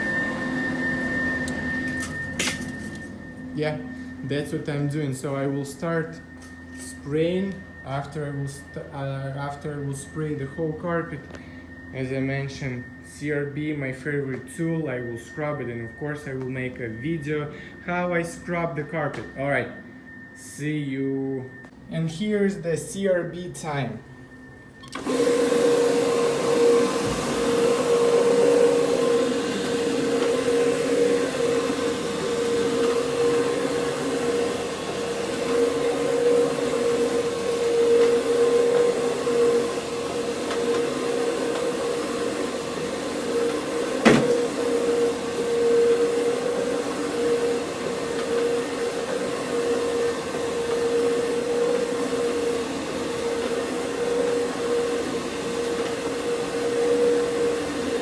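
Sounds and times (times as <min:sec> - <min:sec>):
carpet scrubbing machine motor hum: 0:00.0 - 0:03.5, 0:24.9 - 0:58.0.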